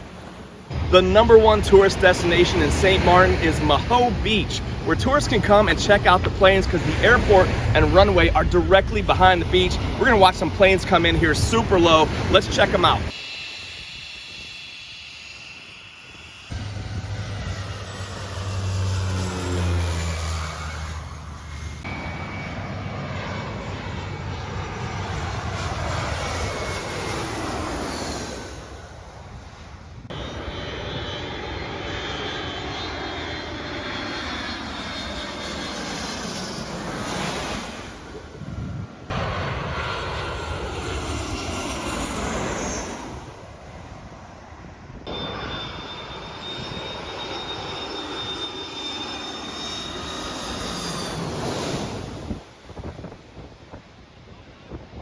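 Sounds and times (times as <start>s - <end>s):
airliners flying overhead: 0.0s - 55.0s.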